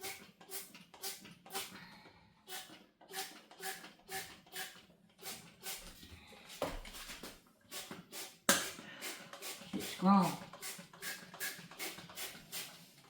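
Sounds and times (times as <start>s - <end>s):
spray bottle squirting: 7.0s - 12.8s.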